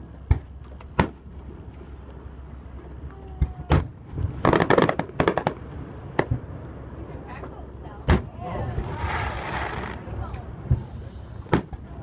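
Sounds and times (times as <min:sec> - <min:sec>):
fireworks shells booming: 0:03.7 - 0:06.5, 0:08.0 - 0:11.9.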